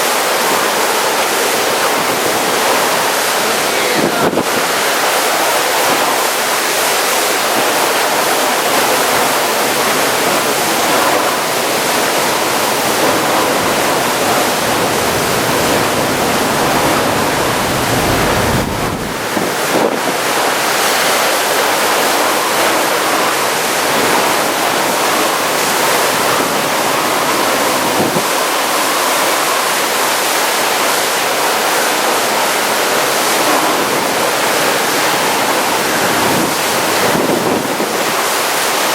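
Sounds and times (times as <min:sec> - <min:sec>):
heavy rain driven by wind: 0:00.0 - 0:38.9
wind buffeting microphone: 0:07.4 - 0:20.2.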